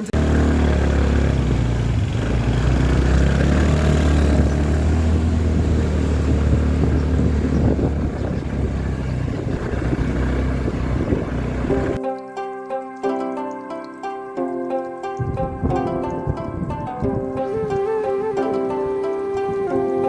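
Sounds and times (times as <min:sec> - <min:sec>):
motorbike engine running: 0:00.0 - 0:12.0
rushing wind noise: 0:00.7 - 0:12.0, 0:15.2 - 0:20.0.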